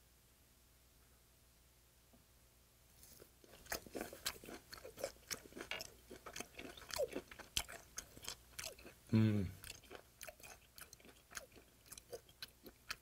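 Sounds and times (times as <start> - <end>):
wet chewing with crunches: 3.0 - 13.0.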